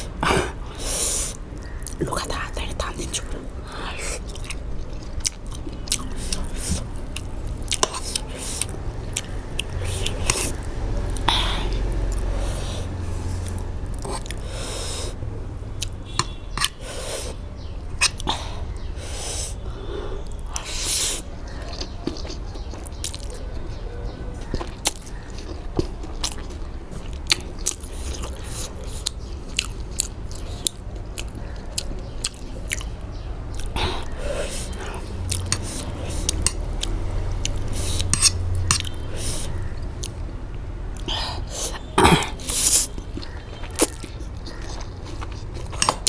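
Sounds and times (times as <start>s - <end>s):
chewing and slurping noodles: 0.0s - 15.2s, 24.3s - 40.3s, 40.9s - 46.0s
mouth clicks and smacks: 0.0s - 46.0s.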